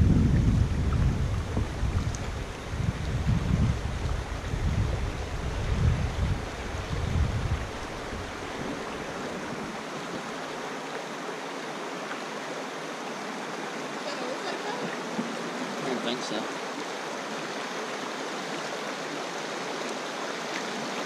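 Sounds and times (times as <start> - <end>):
wind buffeting microphone: 0.0 - 9.8
flowing river water: 0.0 - 21.0.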